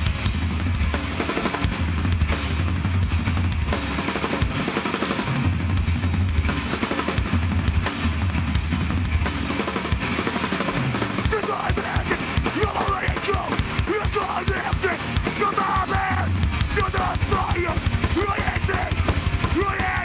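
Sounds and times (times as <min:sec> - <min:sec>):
distorted guitars: 0:00.0 - 0:20.0
drum kit pounding: 0:00.0 - 0:20.0
bass line: 0:10.9 - 0:20.0.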